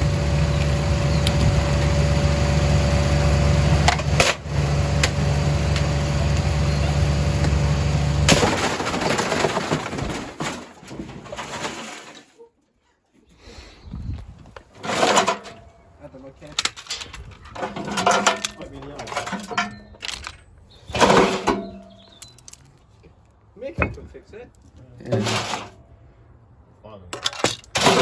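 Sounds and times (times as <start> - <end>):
washing machine motor hum: 0.0 - 8.3
loud crash: 8.2 - 12.2
clattering: 8.3 - 12.3, 14.6 - 15.8, 16.4 - 22.7, 25.1 - 25.9, 27.1 - 28.0.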